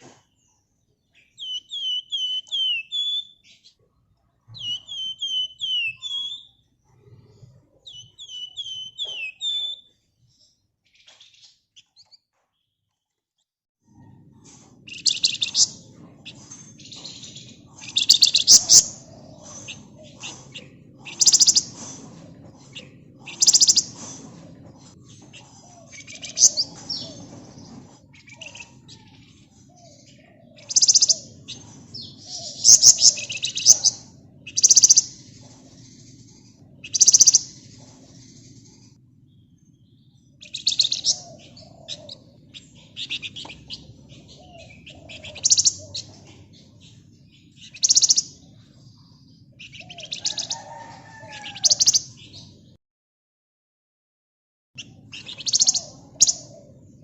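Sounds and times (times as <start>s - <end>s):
bird chattering trills: 1.2s - 3.6s, 14.8s - 38.9s, 40.3s - 48.6s, 49.5s - 52.4s, 54.8s - 56.8s.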